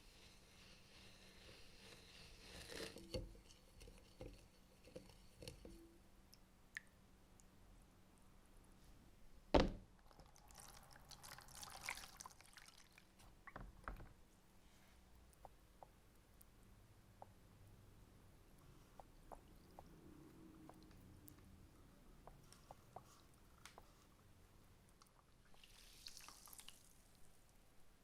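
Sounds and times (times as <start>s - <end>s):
sharp loud thunk: 9.6s - 9.8s.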